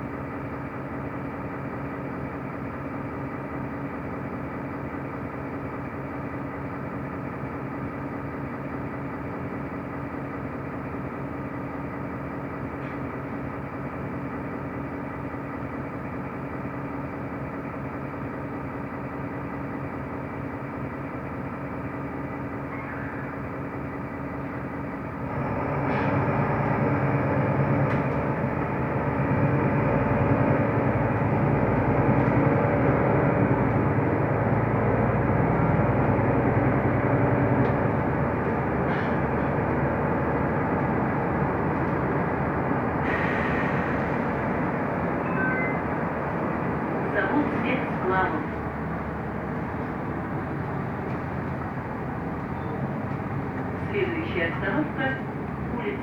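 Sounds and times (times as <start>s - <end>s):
bus diesel engine: 0.0s - 56.0s
road drone: 0.0s - 56.0s.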